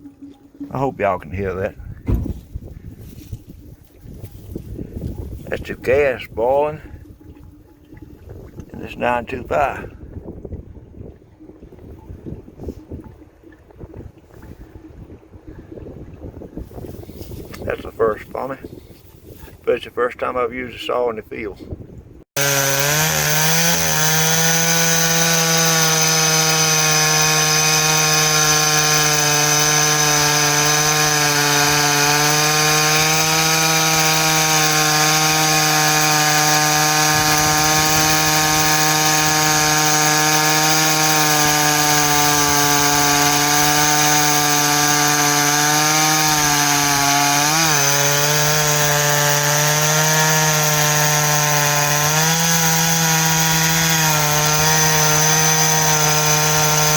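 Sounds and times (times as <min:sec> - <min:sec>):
chainsaw cutting wood: 0:22.3 - 0:56.9.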